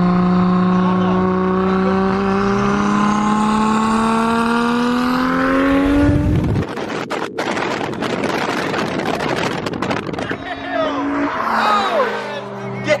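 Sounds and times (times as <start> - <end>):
car engine accelerating: 0.0 - 13.0
rough even noise: 8.8 - 13.0.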